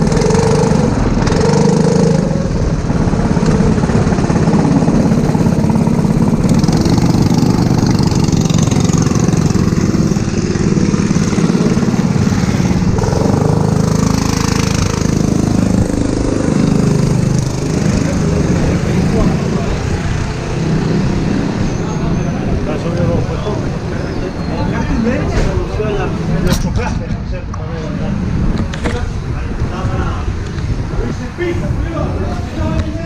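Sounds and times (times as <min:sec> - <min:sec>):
go-kart engine running: 0:00.0 - 0:24.2.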